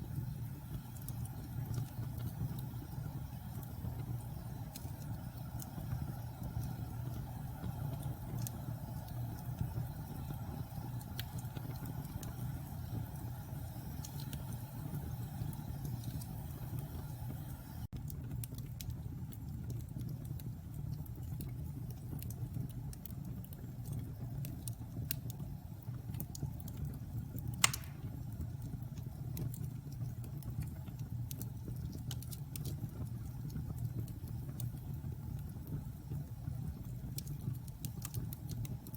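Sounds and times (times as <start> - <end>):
fire crackling: 0.0 - 38.9
fireplace flames roaring: 0.0 - 38.9
loud sharp pop: 27.6 - 28.1.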